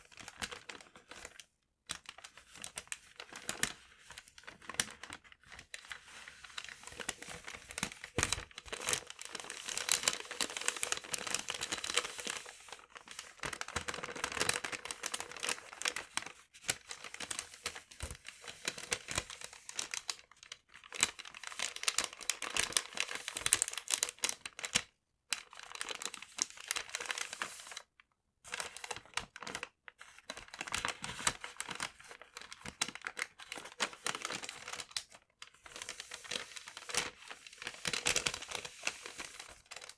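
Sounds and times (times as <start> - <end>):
paper crumpling: 0.1 - 27.8, 28.5 - 39.9.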